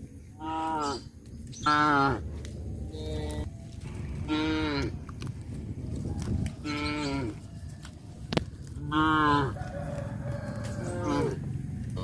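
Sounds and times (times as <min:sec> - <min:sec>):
cows mooing: 0:04.1 - 0:05.0, 0:06.6 - 0:07.5, 0:08.8 - 0:09.6, 0:10.6 - 0:12.0.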